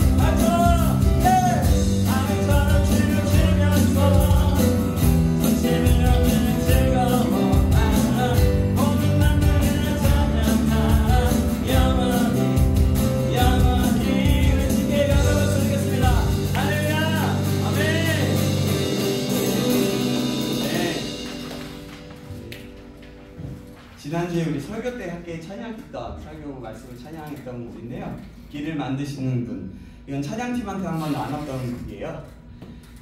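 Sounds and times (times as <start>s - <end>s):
person singing lead: 0.0s - 18.5s
bass guitar: 0.0s - 23.0s
keyboard: 0.0s - 23.8s
acoustic guitar: 0.0s - 24.1s.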